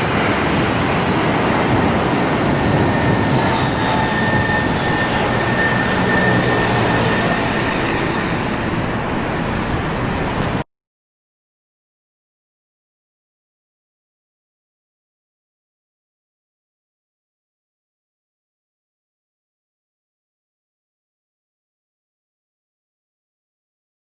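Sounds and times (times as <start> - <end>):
jet engines roaring: 0.0 - 10.6.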